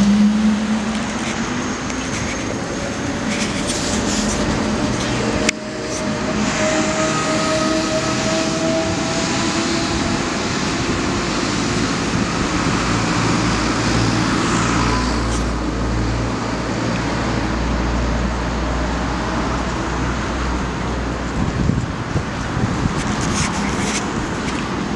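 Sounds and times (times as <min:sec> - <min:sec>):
heavy low engine rumble: 0:00.0 - 0:24.9
vehicles passing: 0:00.0 - 0:24.9.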